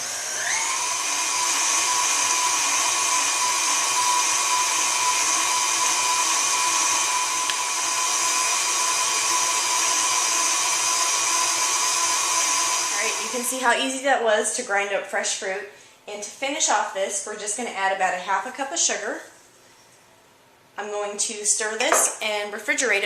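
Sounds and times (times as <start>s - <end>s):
stand mixer motor whine: 0.0s - 13.4s.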